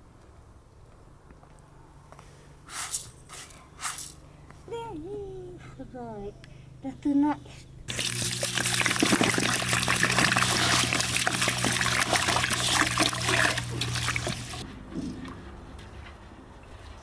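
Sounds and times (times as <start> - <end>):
liquid pouring and splashing: 7.9 - 14.6.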